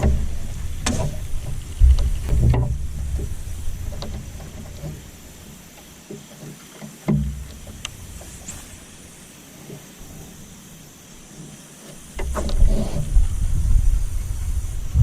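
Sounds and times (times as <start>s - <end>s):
low rumble: 0.0s - 5.3s, 13.1s - 15.0s
knocks and thumps on a boat: 0.0s - 8.8s, 11.2s - 15.0s.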